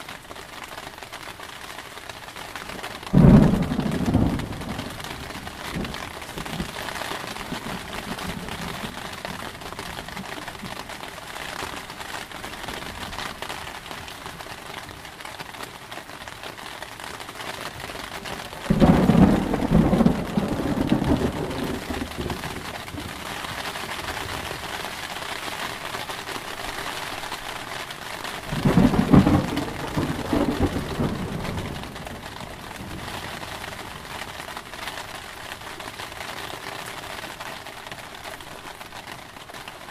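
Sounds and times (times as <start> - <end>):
steady rain: 0.0 - 39.9
thunder rolling: 3.1 - 6.8, 18.6 - 23.2, 28.5 - 33.4.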